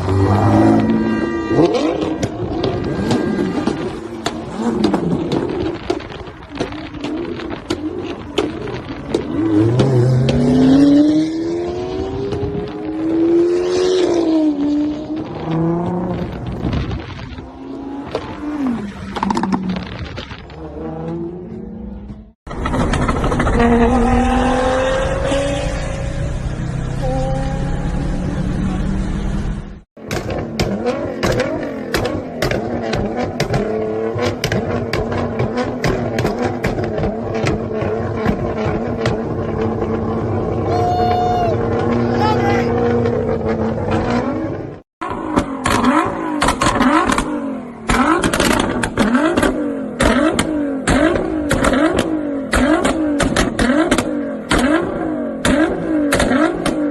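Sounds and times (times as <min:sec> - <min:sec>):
car engine revving: 0:00.0 - 0:56.9
exhaust pops: 0:01.6 - 0:10.6, 0:30.0 - 0:40.7, 0:45.0 - 0:56.9.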